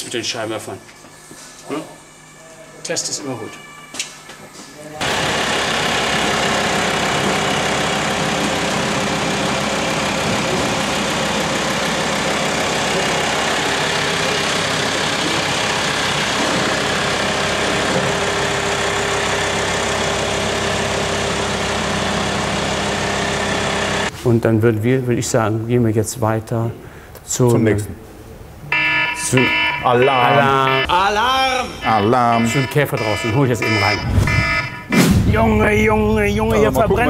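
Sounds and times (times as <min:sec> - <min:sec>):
vehicle engine idling: 0:05.0 - 0:24.1.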